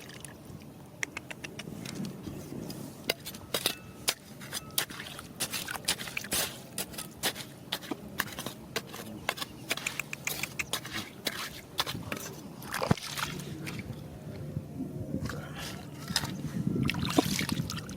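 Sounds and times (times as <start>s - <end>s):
rocks and gravel clacking: 3.1s - 13.4s.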